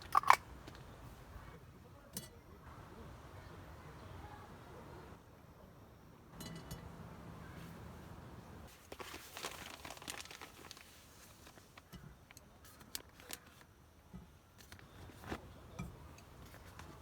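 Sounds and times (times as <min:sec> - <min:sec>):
rustling and crinkling: 0:07.4 - 0:13.7, 0:14.6 - 0:17.0.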